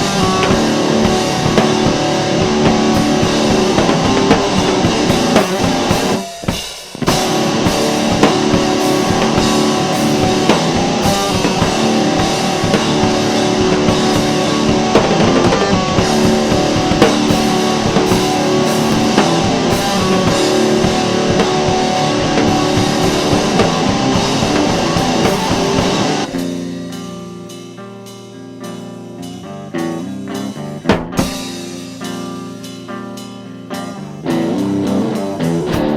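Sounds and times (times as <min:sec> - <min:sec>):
rock music with drums and guitar: 0:00.0 - 0:35.9.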